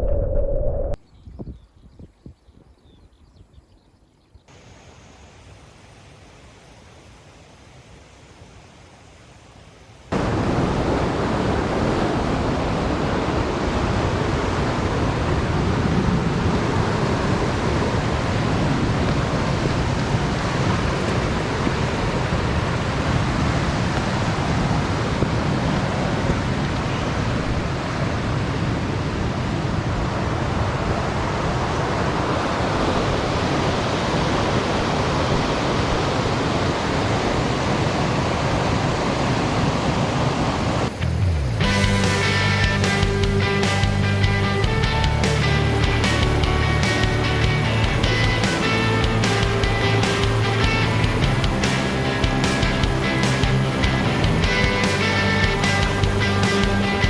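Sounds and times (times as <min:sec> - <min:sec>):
mountain stream rushing: 0:04.5 - 0:57.0.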